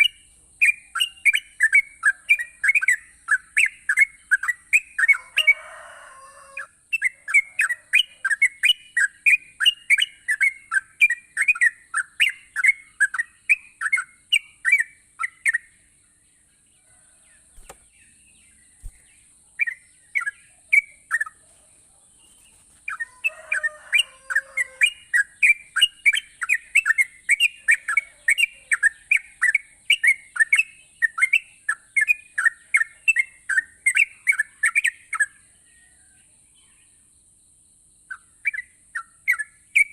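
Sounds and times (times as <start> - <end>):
bulbul singing sharp repeated notes: 0.0 - 5.3, 6.7 - 16.2, 17.5 - 35.4.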